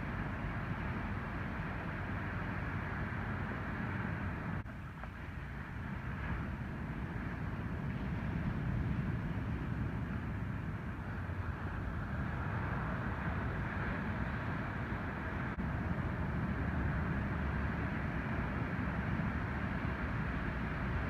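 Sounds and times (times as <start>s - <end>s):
wind on microphone: 0.0s - 21.0s
ocean surf roaring: 5.7s - 21.0s.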